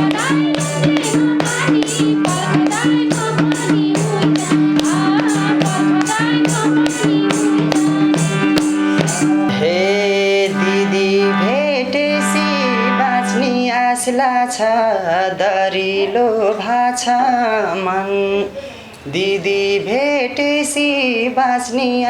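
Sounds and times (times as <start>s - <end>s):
hand drum beat: 0.0s - 9.7s
sliding folk melody: 0.0s - 14.3s.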